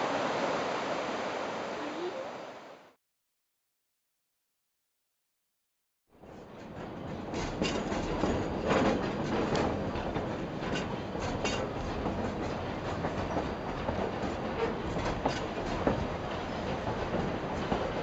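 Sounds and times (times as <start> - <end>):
train coaches clattering over rail joints: 6.2 - 18.0.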